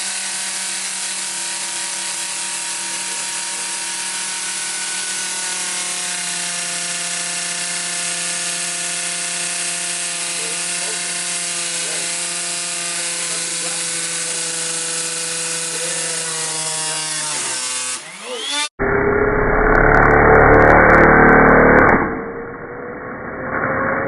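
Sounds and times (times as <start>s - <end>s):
toy piston engine whining: 0.0s - 18.7s.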